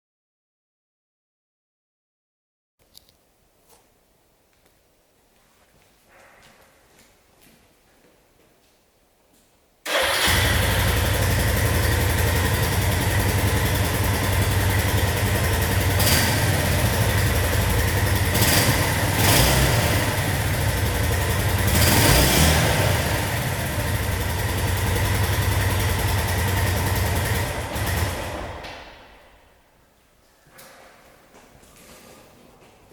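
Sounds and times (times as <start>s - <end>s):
engine throttle blips: 9.9s - 28.6s
motorcycle engine idling: 9.9s - 28.6s.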